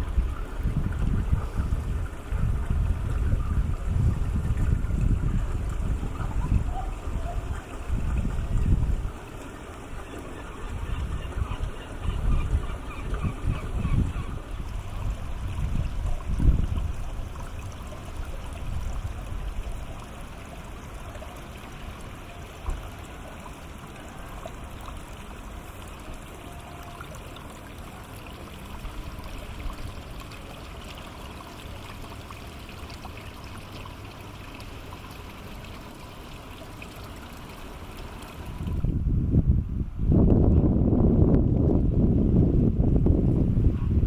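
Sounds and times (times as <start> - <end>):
wind buffeting microphone: 0.0 - 20.3, 38.4 - 44.0
water trickling along shore: 0.0 - 39.1.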